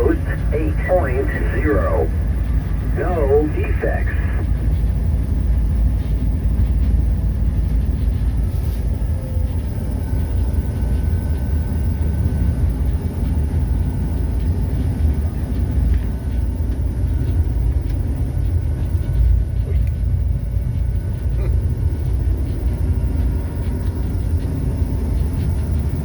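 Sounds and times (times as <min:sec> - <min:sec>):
diesel locomotive rumbling: 0:00.0 - 0:23.3
faint steady whine: 0:00.0 - 0:26.0.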